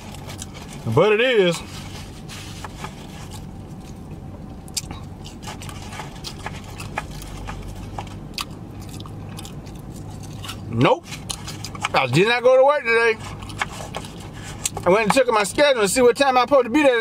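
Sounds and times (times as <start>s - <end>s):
chewing food: 0.0s - 0.9s, 2.8s - 12.3s, 13.2s - 14.8s.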